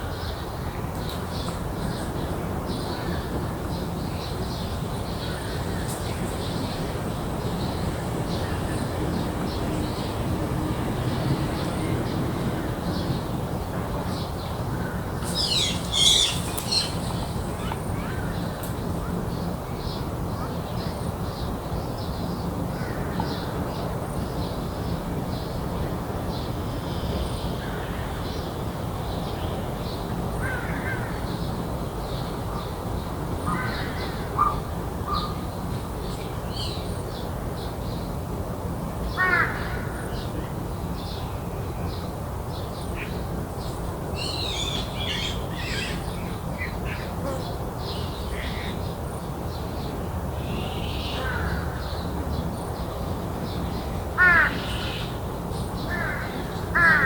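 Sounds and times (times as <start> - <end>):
small birds chirping: 15.2 - 18.5
crows cawing: 54.2 - 55.0, 55.9 - 57.0.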